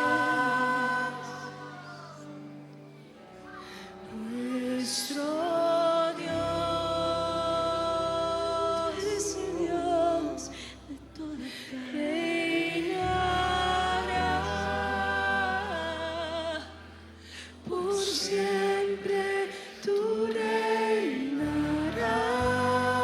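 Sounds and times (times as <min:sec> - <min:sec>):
person singing long notes: 0:00.0 - 0:02.4.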